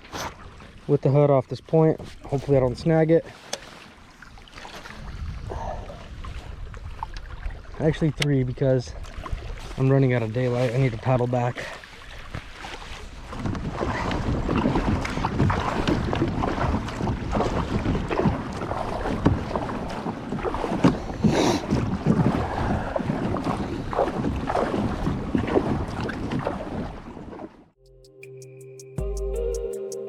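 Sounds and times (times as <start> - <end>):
water splashing around kayak: 0.0 - 27.8
wind buffeting microphone: 4.8 - 11.0, 12.1 - 27.3.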